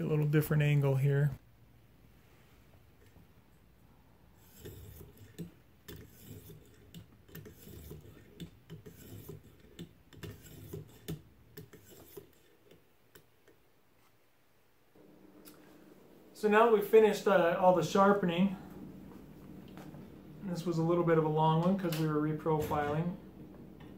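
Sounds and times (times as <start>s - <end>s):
knife scraping on sharpening stone: 4.4s - 12.5s.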